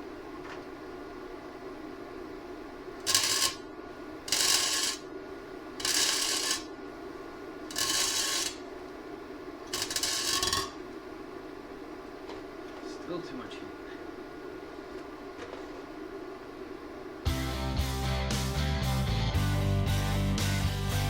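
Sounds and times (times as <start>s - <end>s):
steady low hum: 0.0s - 18.0s
welder crackling hiss: 3.0s - 3.6s, 4.3s - 5.0s, 5.8s - 6.7s, 7.7s - 8.6s.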